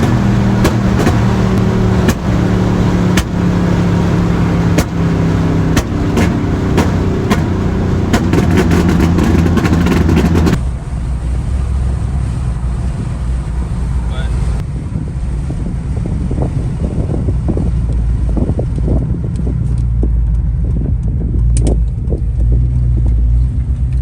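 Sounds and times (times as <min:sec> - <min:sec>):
sharp exhaust cracks: 0:00.0 - 0:11.4
car engine driving: 0:00.0 - 0:24.0.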